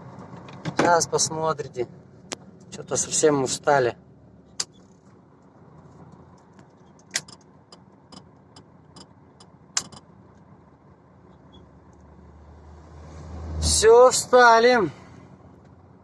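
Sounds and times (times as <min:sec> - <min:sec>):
truck engine humming: 0:01.2 - 0:12.8
sharp clicks: 0:06.2 - 0:07.5, 0:09.8 - 0:10.0.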